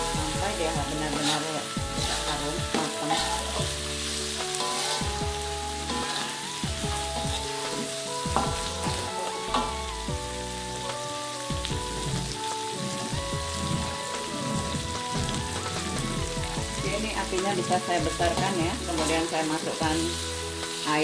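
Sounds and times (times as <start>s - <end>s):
metal spatula scraping a wok: 0.0s - 9.9s, 17.3s - 20.9s
spices sizzling in oil: 0.0s - 21.0s.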